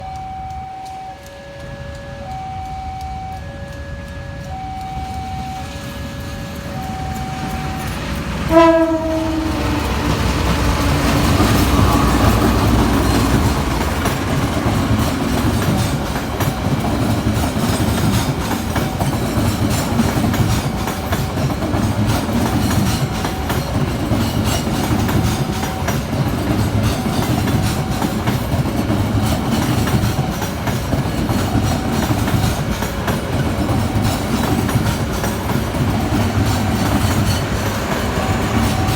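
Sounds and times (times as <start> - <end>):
train wheels clickety-clack: 0.0 - 38.9
train horn blast: 0.8 - 13.8.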